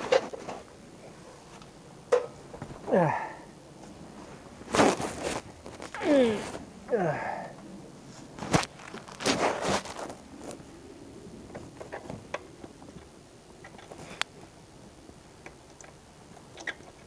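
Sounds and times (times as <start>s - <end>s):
rustling and scraping: 0.0s - 2.9s, 3.8s - 6.8s, 8.0s - 10.9s.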